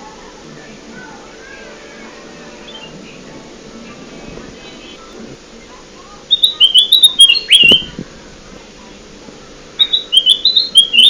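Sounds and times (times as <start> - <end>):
faint steady hum: 0.0 - 11.0
bird chirping high notes: 1.6 - 3.3, 6.3 - 8.0, 9.8 - 11.0.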